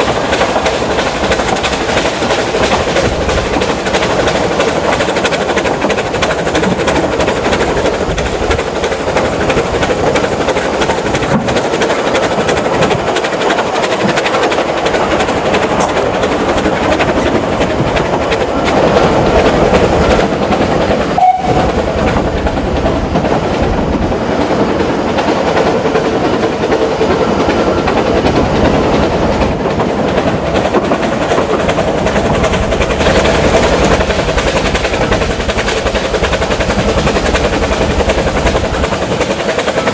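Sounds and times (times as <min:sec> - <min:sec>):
steam train running: 0:00.0 - 0:39.9.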